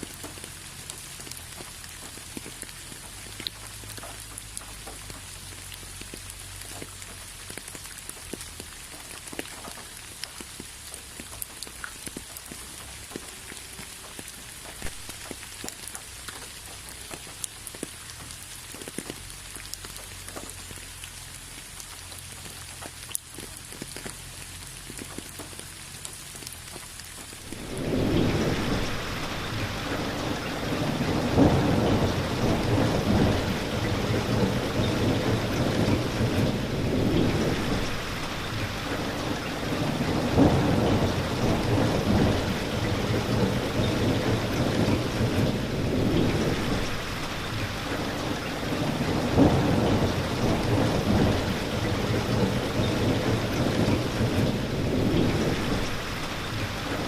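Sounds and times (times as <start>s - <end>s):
rain: 0.0s - 57.0s
rumbling thunder: 27.4s - 57.0s.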